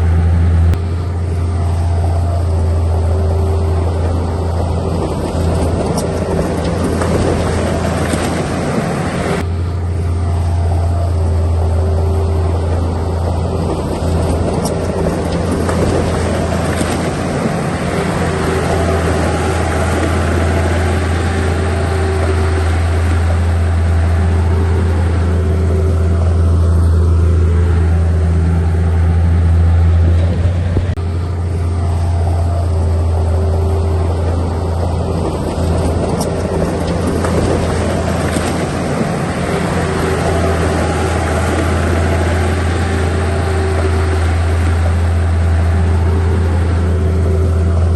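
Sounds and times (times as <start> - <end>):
heavy diesel engine droning: 0.0 - 47.9.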